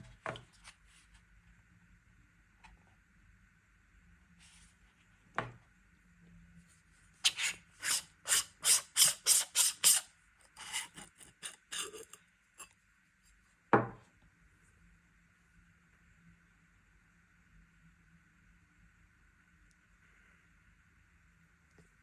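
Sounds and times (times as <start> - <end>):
quick rasping strokes: 10.6 - 12.1.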